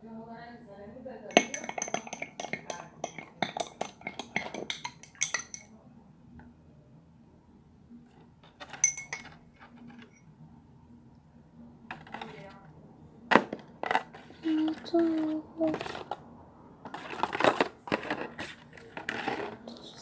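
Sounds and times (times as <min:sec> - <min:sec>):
spoon clinking against a bowl: 0:01.3 - 0:05.7, 0:08.7 - 0:09.4.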